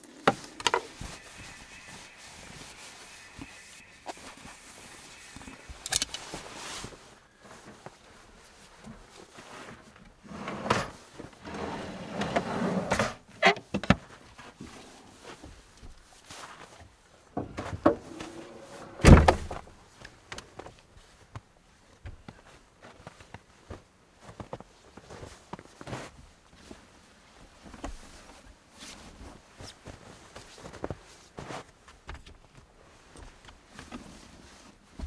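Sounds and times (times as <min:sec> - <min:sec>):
rustling: 0:00.0 - 0:10.0
gear knocks and clunks: 0:17.4 - 0:19.7
heavy thump: 0:17.4 - 0:19.7.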